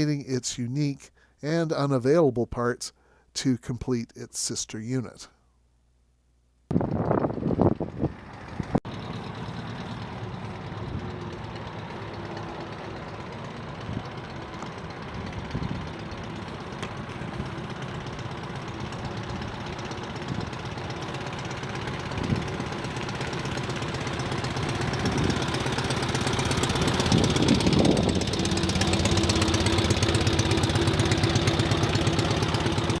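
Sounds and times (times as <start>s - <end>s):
small engine running and revving: 6.8s - 33.0s.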